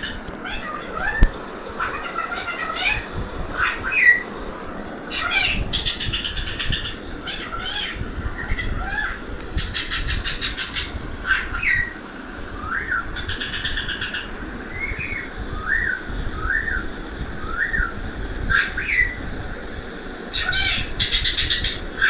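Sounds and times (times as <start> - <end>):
parrot chattering and whistling: 0.0 - 4.3, 5.1 - 12.0, 20.3 - 22.0.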